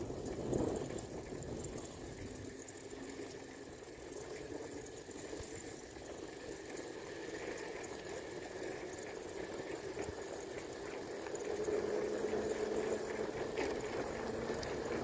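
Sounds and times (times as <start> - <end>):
wind over microphone: 0.0 - 2.7
bicycle tyres rolling: 0.0 - 15.0.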